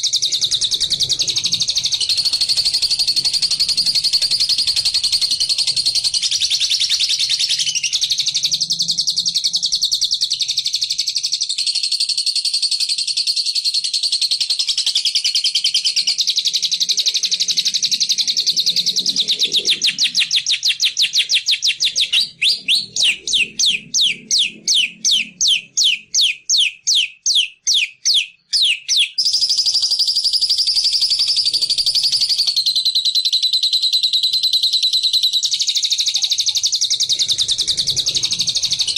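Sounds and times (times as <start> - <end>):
songbird trilling: 0.0 - 11.8, 14.6 - 38.9
sharp downward sweeping bird notes: 18.9 - 29.3.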